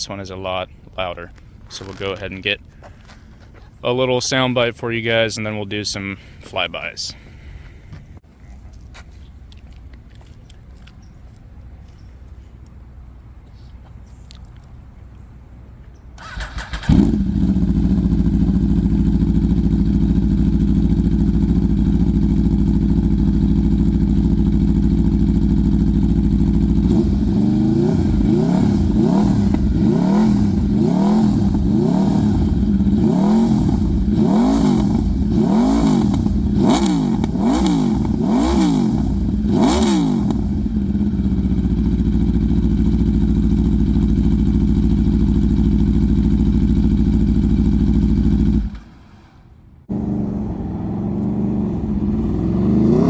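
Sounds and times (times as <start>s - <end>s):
motorcycle engine idling: 16.2s - 52.7s
motorcycle engine revving: 16.2s - 53.0s
motorcycle engine starting: 16.2s - 53.0s.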